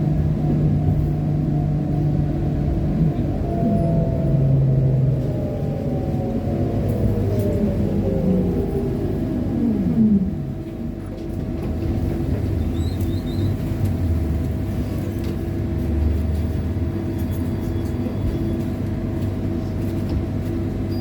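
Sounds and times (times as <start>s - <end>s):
low rumble: 0.0s - 19.7s
trolleybus motor whine: 0.0s - 21.0s.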